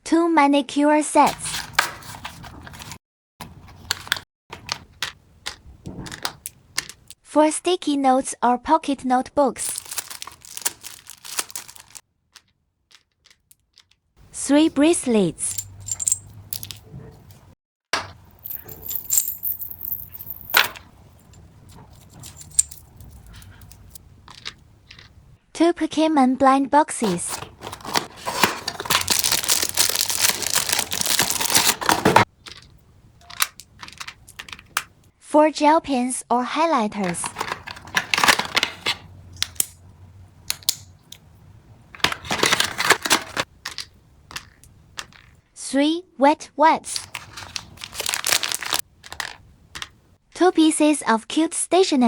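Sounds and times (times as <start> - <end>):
plastic packaging rustling: 9.6 - 14.0, 18.4 - 20.8, 27.0 - 35.0, 37.0 - 39.6, 42.0 - 45.3, 46.9 - 49.9.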